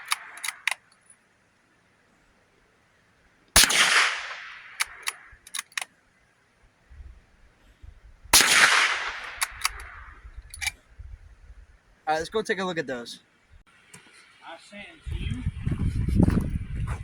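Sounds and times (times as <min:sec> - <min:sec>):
sharp clicks: 0:00.0 - 0:01.0, 0:03.6 - 0:05.9, 0:08.4 - 0:10.8
gunshots with echoing tail: 0:03.6 - 0:05.1, 0:08.4 - 0:10.1.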